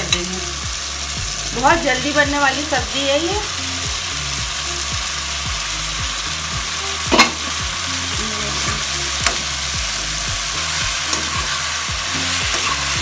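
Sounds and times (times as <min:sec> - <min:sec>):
vegetables sizzling in hot oil: 0:00.0 - 0:13.0
metal spatula stirring: 0:10.6 - 0:13.0.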